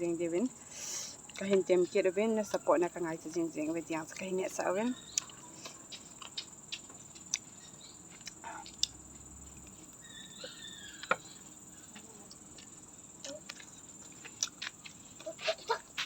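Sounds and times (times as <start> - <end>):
crickets trilling: 0.0 - 16.0
vegetables crunched and chewed: 4.9 - 16.0.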